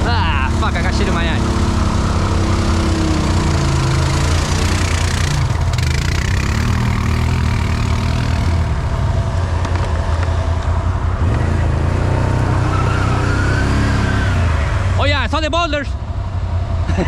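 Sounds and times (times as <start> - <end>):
off-road vehicle engine running: 0.0 - 17.0.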